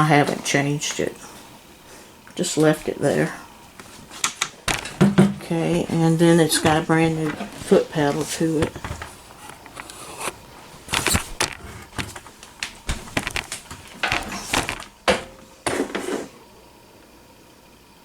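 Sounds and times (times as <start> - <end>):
pedal cord rustling: 2.4 - 16.3
sharp clicks and knocks: 3.8 - 5.5, 8.6 - 15.8.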